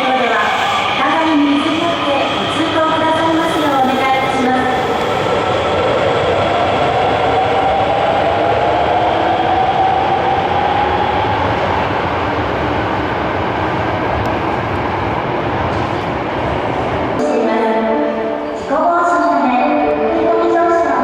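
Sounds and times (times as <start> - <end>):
train wheel and rail rumble: 0.0 - 21.0.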